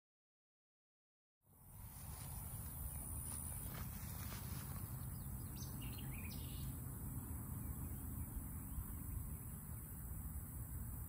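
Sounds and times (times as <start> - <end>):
steady low rumble: 1.6 - 11.0
bird chirping: 2.3 - 11.0.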